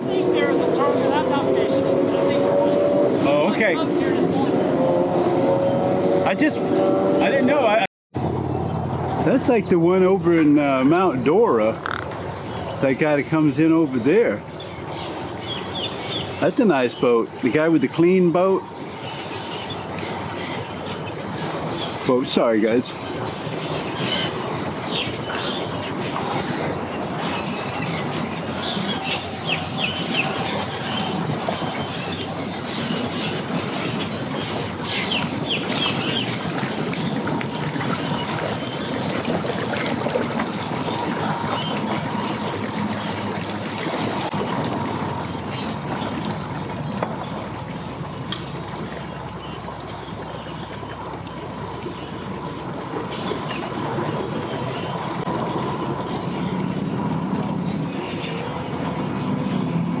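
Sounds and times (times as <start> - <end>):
birds chirping: 0.0 - 60.0
engine running: 0.0 - 60.0.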